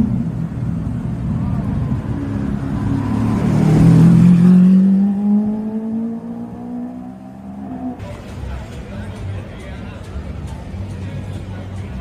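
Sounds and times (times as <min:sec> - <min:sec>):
car engine accelerating past: 0:00.0 - 0:08.0.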